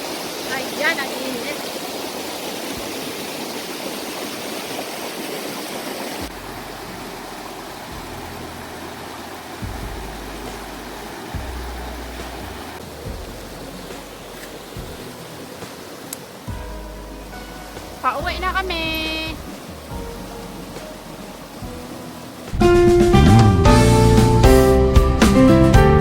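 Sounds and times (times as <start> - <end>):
creek water flowing: 0.0 - 26.0
low rumbles: 6.2 - 15.4, 16.5 - 26.0.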